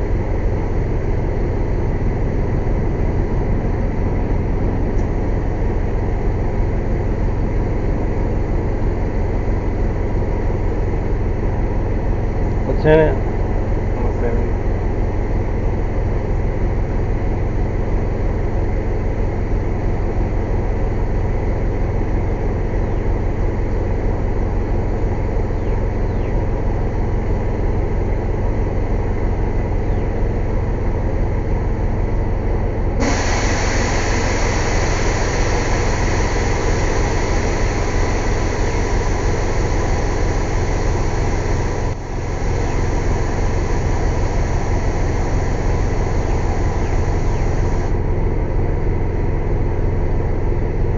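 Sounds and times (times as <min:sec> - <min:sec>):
compressed air hissing: 0:33.0 - 0:48.0
air compressor running: 0:33.0 - 0:48.6.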